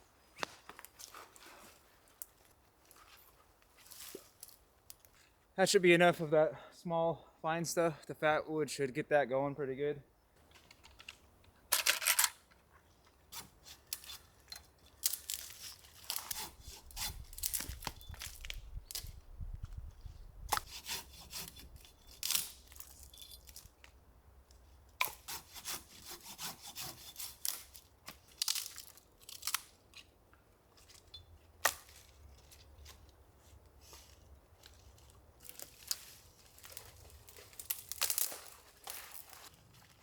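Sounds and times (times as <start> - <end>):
dry wood scraping and snapping: 10.4 - 40.0.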